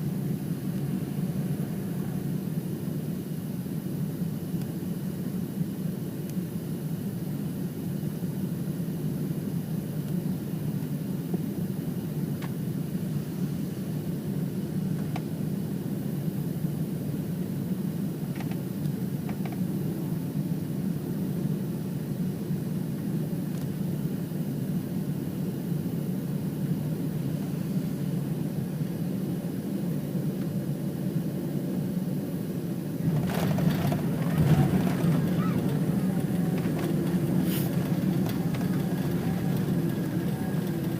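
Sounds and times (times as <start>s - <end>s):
airliner cabin rumble: 0.0s - 40.9s.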